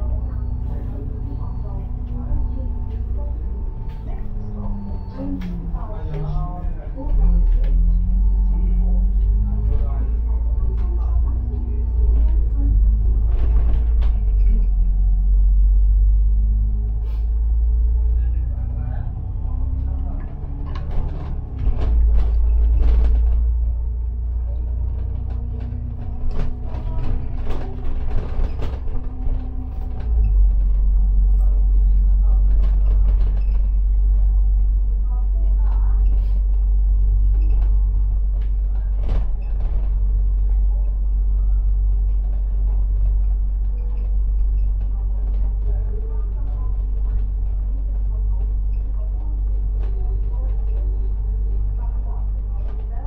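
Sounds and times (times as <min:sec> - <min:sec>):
bus engine rumble: 0:00.0 - 0:53.0
faint voices: 0:00.0 - 0:53.0
rattles and creaks of bus body: 0:00.0 - 0:53.0.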